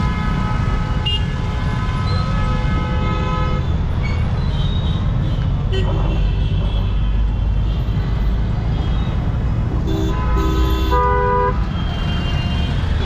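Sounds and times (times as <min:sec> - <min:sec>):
vehicle horns honking: 0:00.0 - 0:03.8, 0:09.8 - 0:13.0
street traffic rumble: 0:00.0 - 0:13.0.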